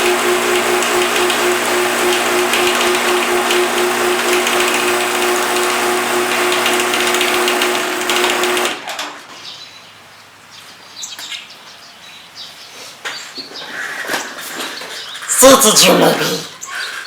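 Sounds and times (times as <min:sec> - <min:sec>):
garage door opener motor humming: 0:00.0 - 0:09.3.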